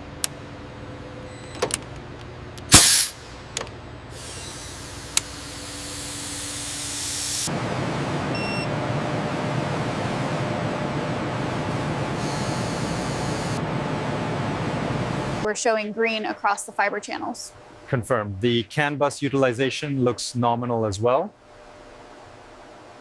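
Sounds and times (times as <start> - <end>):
loud hiss: 2.7 - 3.3, 4.2 - 7.5.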